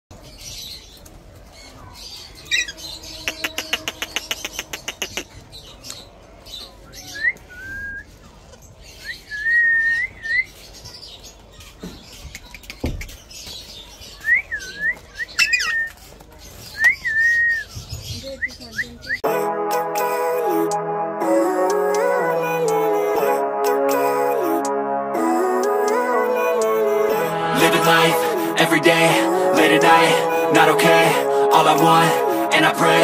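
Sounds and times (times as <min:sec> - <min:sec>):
parakeet chick whistled calls: 0:14.4 - 0:15.9.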